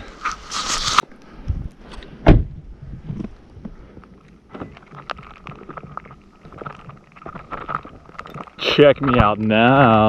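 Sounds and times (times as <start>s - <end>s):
heavy thump: 2.2s - 3.3s.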